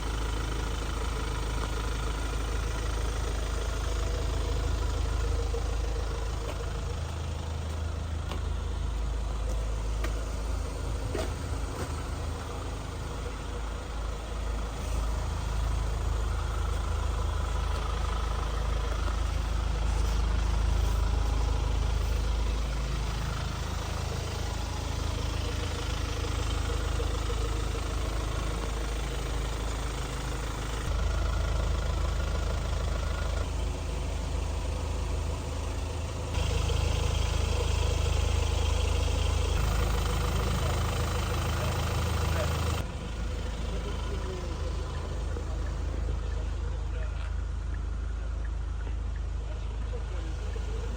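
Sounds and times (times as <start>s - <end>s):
diesel engine idling: 0.0s - 50.9s.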